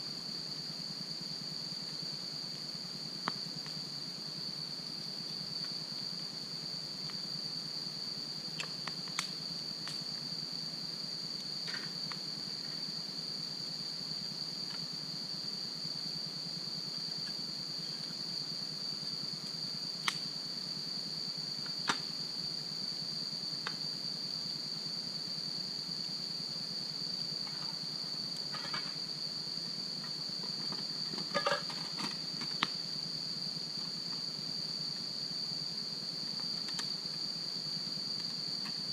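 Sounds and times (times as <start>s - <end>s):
crickets trilling: 0.0s - 38.9s
wood fire crackling: 8.6s - 10.0s.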